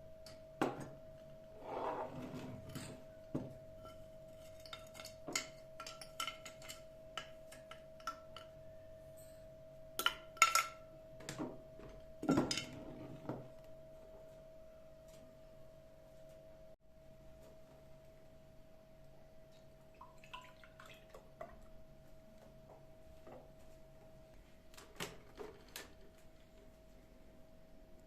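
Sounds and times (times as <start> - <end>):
dishes and glassware clinking: 2.6 - 10.9, 12.2 - 13.4.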